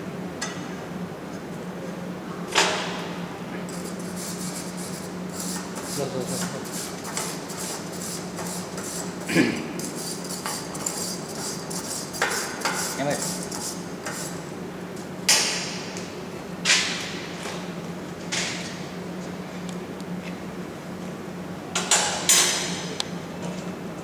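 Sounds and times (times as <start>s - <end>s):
steady low hum: 0.0s - 18.3s.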